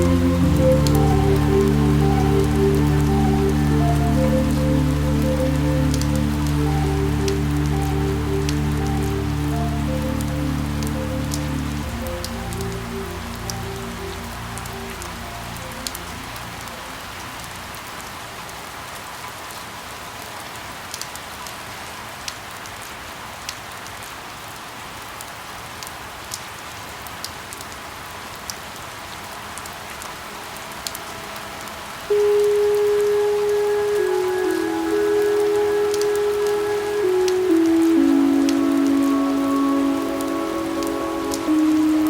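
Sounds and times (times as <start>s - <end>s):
loud steady tone: 0.0s - 17.0s, 30.6s - 42.0s
soft background music: 0.0s - 18.5s, 29.2s - 42.0s
steady rain: 0.0s - 42.0s.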